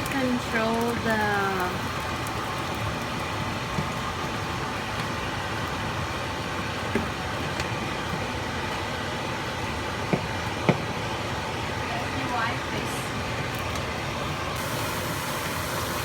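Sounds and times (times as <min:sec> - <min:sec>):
food hissing in hot pan: 0:14.6 - 0:16.0.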